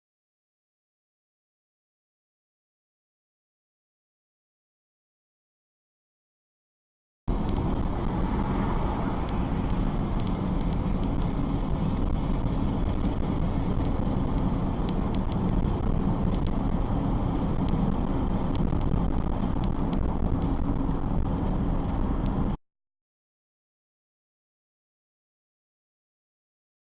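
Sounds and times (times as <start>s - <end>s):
car engine and road rumble: 7.3s - 22.6s.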